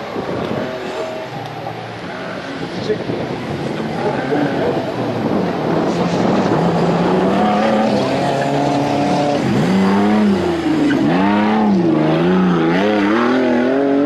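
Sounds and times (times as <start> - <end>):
race vehicle engine revving: 3.8 - 14.0.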